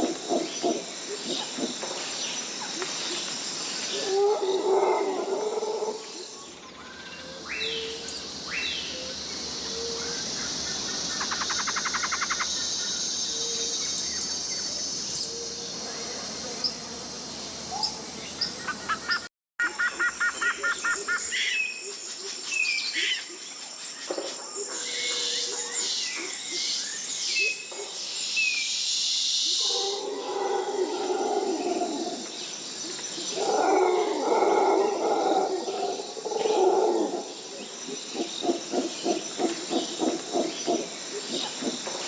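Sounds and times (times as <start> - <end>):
insects buzzing: 0.0 - 19.2
bird calls and chirps: 6.4 - 16.8
fast trilled bird calls: 11.2 - 12.5.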